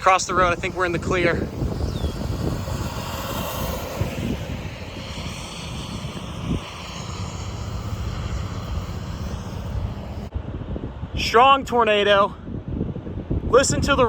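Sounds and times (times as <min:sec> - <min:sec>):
tornado roaring: 0:00.0 - 0:11.2.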